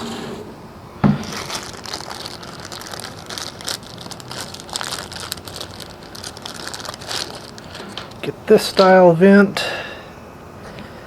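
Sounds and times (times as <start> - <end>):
plastic parts crinkling: 1.1 - 9.0.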